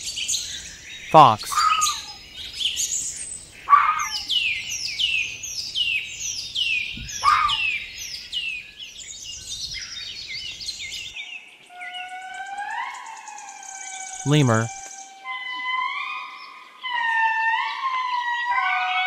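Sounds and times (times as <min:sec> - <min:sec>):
low bird calls: 0:06.8 - 0:08.2
songbird repeating high note: 0:14.3 - 0:14.7.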